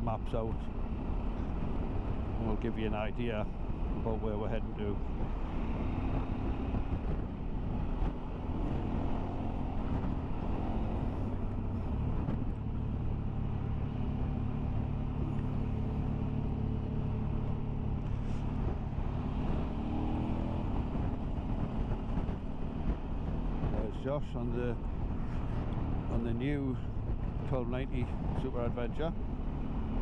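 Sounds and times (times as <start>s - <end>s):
motorcycle engine running: 5.0s - 27.6s.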